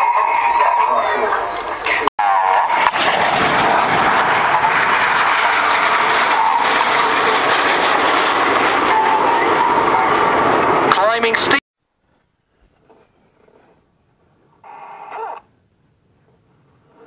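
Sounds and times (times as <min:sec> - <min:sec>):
jet engines roaring: 0:00.0 - 0:11.6.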